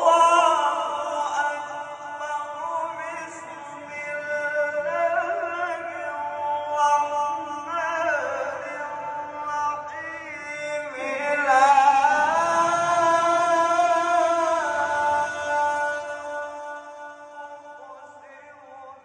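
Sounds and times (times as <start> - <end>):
man reciting melodically: 0.0 - 19.0.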